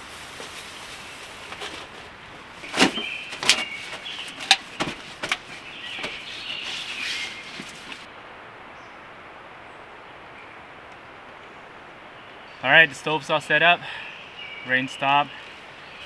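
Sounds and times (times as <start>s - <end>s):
scratchy scraping: 0.0s - 8.1s.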